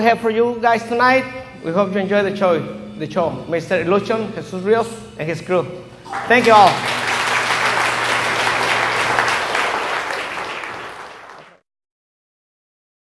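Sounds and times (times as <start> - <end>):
audience applauding: 6.1 - 11.6.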